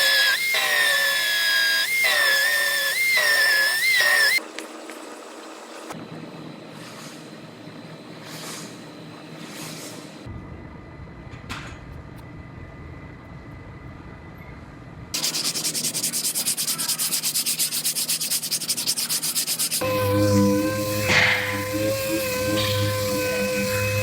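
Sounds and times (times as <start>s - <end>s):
power tool whine: 0.0s - 4.4s, 17.9s - 24.0s
sanding rasp on car bodywork: 15.2s - 24.0s.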